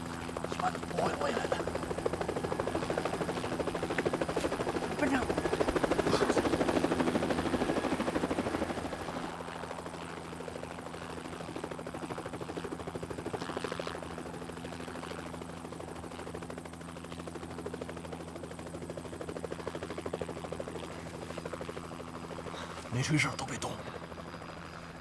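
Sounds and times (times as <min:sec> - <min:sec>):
helicopter rotor chop: 0:00.0 - 0:09.4, 0:17.6 - 0:25.0.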